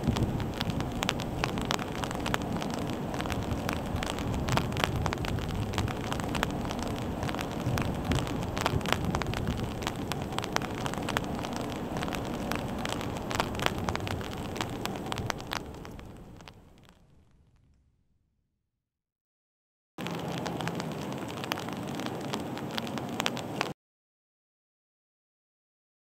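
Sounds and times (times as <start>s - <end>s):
steady rain hiss: 0.0s - 17.1s, 20.0s - 23.7s
rain drops ticking: 0.0s - 17.7s, 20.0s - 23.8s.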